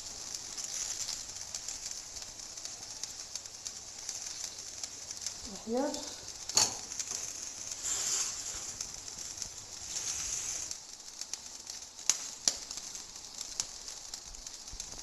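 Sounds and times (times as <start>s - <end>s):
soft hiss from a cooking pot: 0.0s - 15.0s.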